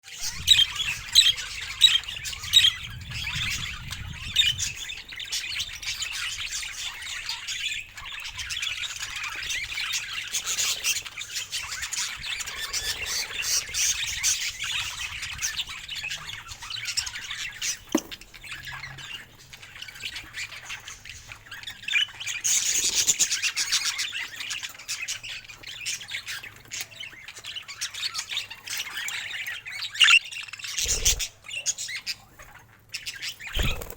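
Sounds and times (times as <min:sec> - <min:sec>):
budgerigars chirping: 0:00.1 - 0:33.9
budgerigar squawks: 0:30.0 - 0:31.3.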